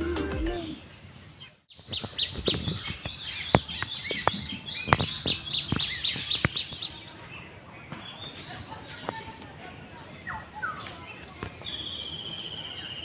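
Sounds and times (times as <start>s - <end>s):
background music: 0.0s - 0.9s
small birds chirping: 0.2s - 13.0s.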